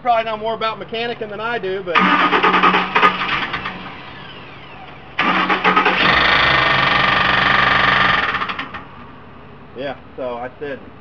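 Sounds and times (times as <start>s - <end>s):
engine starting and running: 1.9s - 9.2s
fast even engine knocking: 5.2s - 8.8s.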